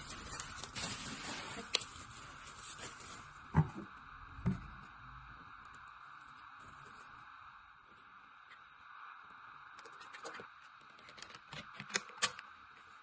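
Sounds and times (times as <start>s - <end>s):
rustling handling noise: 0.0s - 3.8s.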